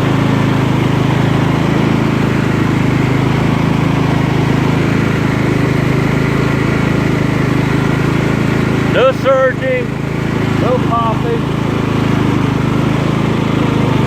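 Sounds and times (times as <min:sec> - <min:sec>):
lawn tractor engine running: 0:00.0 - 0:14.0.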